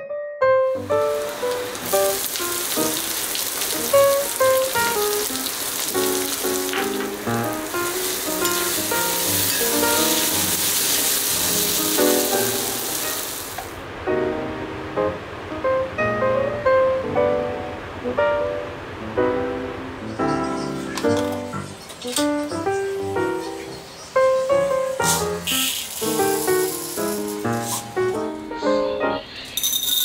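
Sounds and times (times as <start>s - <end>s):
background music: 0.0s - 13.4s, 14.1s - 29.3s
onions sizzling in hot oil: 0.8s - 13.8s, 22.0s - 28.2s.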